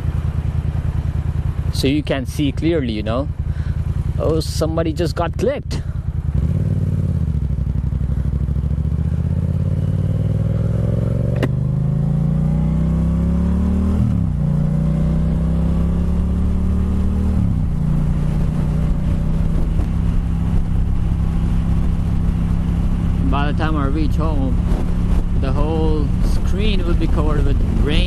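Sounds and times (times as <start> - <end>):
motorcycle engine accelerating: 0.0 - 28.0
sharp click: 11.3 - 11.6.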